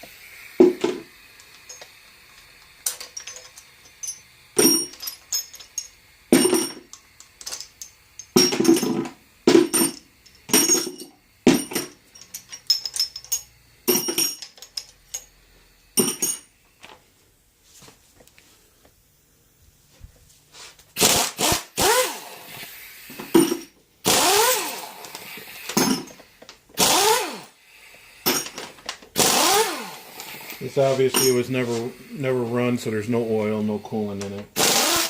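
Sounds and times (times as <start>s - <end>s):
metal parts and tools clinking: 0.8s - 15.4s, 16.0s - 16.5s, 24.5s - 26.3s, 28.3s - 29.6s, 31.0s - 31.7s.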